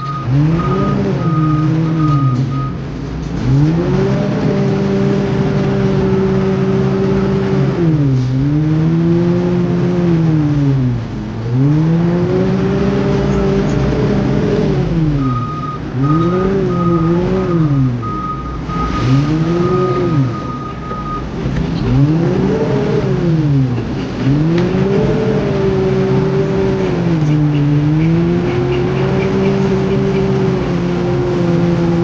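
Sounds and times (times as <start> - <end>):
high beeping alarm: 0.0 - 2.8, 15.2 - 21.3
construction machine engine revving: 0.0 - 32.0.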